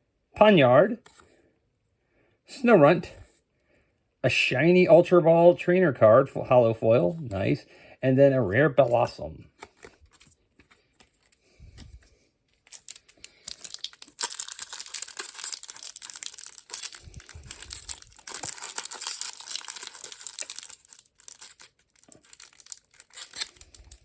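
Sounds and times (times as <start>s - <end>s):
foil wrapper crinkling and tearing: 9.6s - 24.0s.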